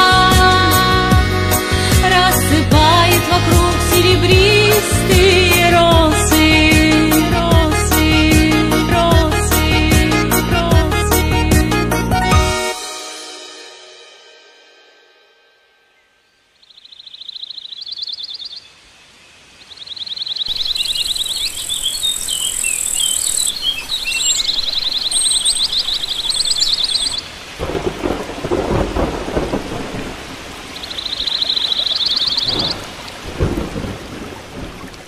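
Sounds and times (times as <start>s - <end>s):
bird trilling: 16.6s - 18.7s, 19.7s - 27.2s, 30.8s - 32.9s
steady rain: 18.7s - 35.0s
thunder rolling: 27.6s - 30.9s, 32.4s - 35.0s.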